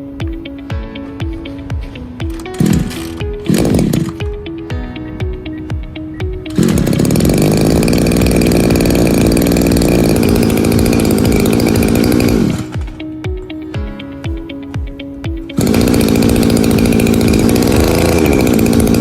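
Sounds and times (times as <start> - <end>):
background music with steady beat: 0.0 - 19.0
brush cutter engine running: 2.3 - 4.4, 6.4 - 13.2, 15.5 - 19.0.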